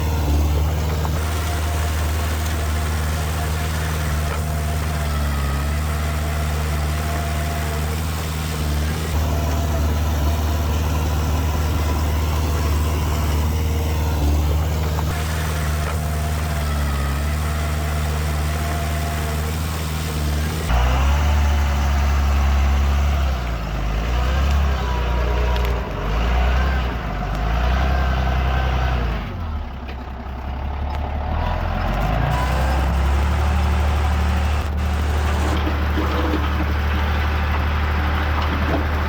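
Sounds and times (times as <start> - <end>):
heavy diesel engine running: 0.0 - 39.0.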